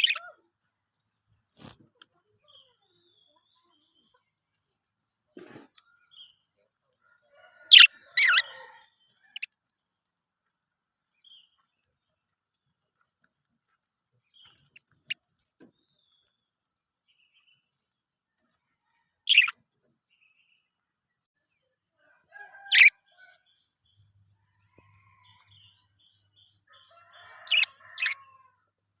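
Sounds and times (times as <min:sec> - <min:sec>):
budgerigars giving shrill calls: 0:00.0 - 0:00.2, 0:07.7 - 0:08.6, 0:19.3 - 0:19.5, 0:27.4 - 0:28.2
soft bird chattering: 0:00.0 - 0:00.4, 0:19.3 - 0:19.6.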